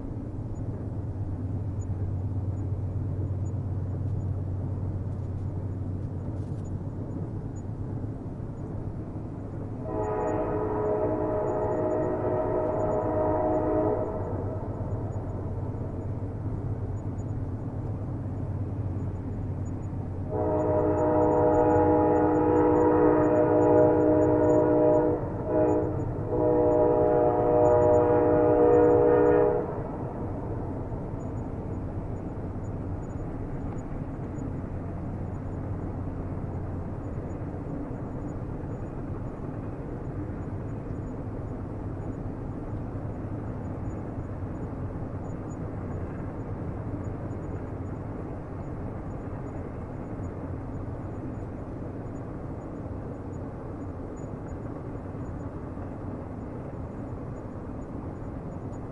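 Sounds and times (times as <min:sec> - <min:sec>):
train rumbling on rails: 0:00.0 - 0:58.9
train horn blast: 0:09.8 - 0:15.5, 0:20.3 - 0:31.3.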